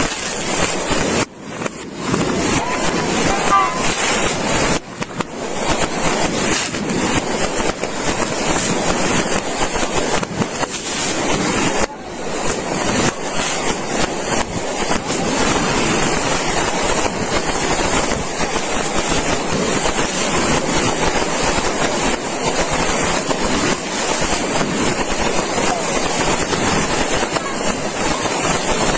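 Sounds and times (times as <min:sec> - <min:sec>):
small firework bangs crackling: 0:00.0 - 0:28.9.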